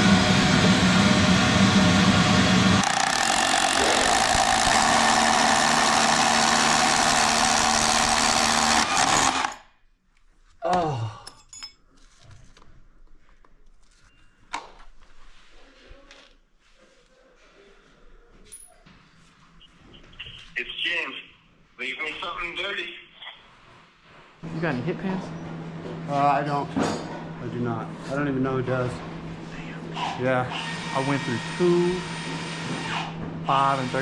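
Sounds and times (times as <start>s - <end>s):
hammer drill boring into concrete: 2.6s - 9.7s, 30.5s - 34.0s.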